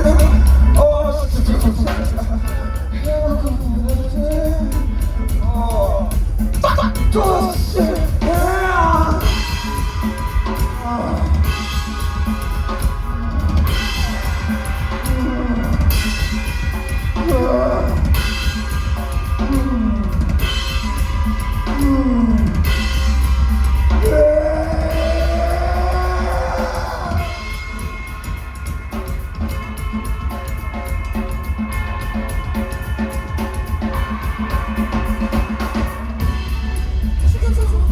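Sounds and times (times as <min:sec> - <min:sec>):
driving drum kit: 0:00.0 - 0:37.9
heavy bass: 0:00.0 - 0:37.9
live rock band playing: 0:00.0 - 0:37.9.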